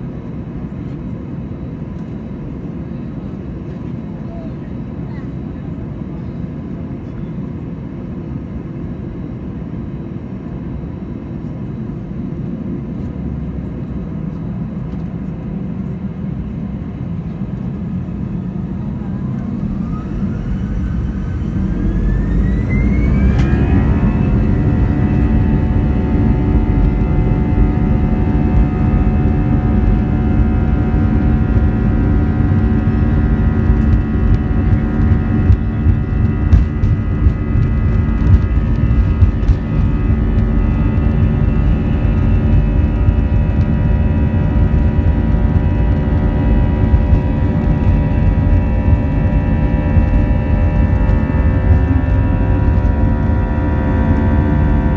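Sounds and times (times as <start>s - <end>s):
jet engine whine: 0.0s - 54.9s
loud rumble of takeoff roll: 12.3s - 54.9s.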